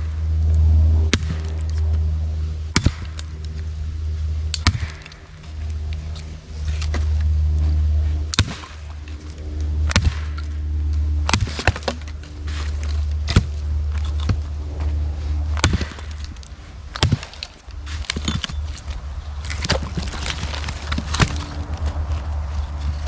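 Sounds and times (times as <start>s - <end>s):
blade chopping wood: 1.1s - 1.7s, 2.7s - 3.3s, 4.5s - 5.2s, 8.3s - 8.8s, 9.9s - 10.5s, 11.2s - 14.5s, 15.5s - 22.0s.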